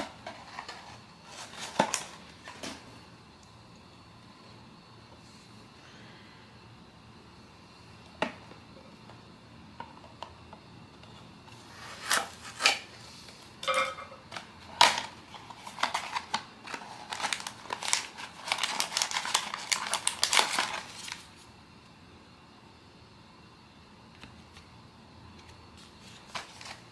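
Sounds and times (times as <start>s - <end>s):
plastic wrapping crinkling: 0.0s - 2.8s, 13.7s - 21.5s, 25.8s - 26.9s
packaging clicks: 14.7s - 21.3s.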